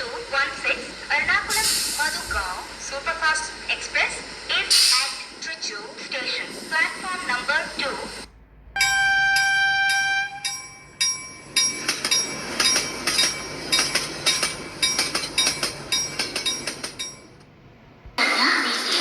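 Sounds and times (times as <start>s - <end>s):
train horn: 8.8s - 10.6s
ringing metallic bell strikes: 8.8s - 17.3s.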